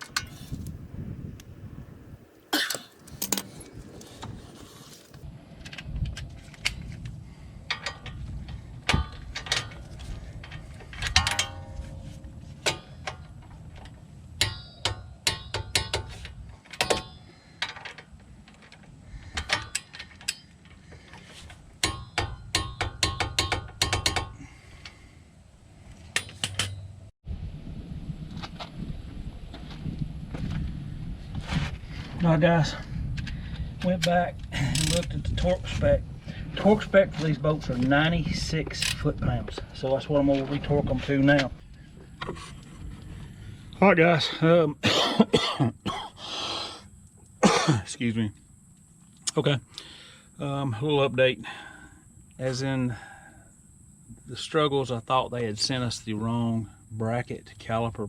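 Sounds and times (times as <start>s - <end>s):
metal clinks and knocks: 2.6s - 4.4s, 8.8s - 20.8s, 21.8s - 24.4s
socket ratchet clicking: 34.7s - 35.1s.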